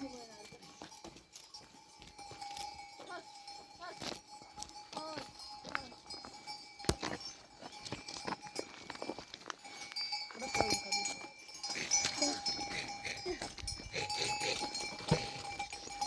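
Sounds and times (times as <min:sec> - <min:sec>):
livestock bells clinking: 0:00.0 - 0:16.0
animal calls: 0:11.7 - 0:15.4.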